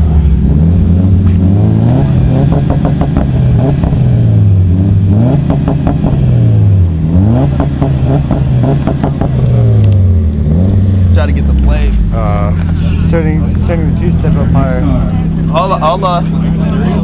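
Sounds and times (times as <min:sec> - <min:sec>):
car engine revving hard: 0:00.0 - 0:17.0.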